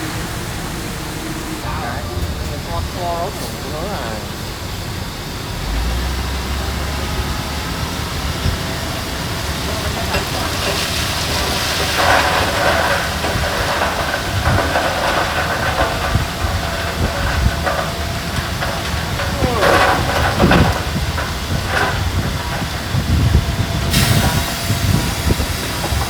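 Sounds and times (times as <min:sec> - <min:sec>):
diesel machinery running: 0:00.0 - 0:26.0
hissing rush: 0:10.1 - 0:20.7.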